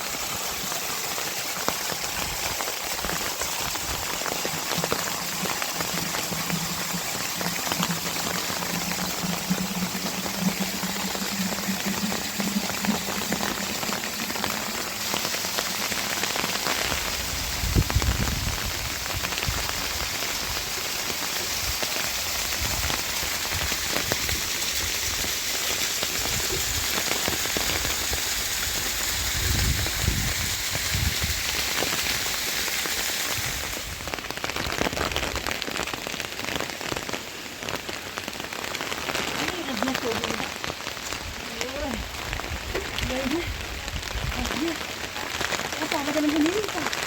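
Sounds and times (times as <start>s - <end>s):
heavy rain falling: 0.0s - 47.0s
low thunder rumbles: 4.7s - 19.0s.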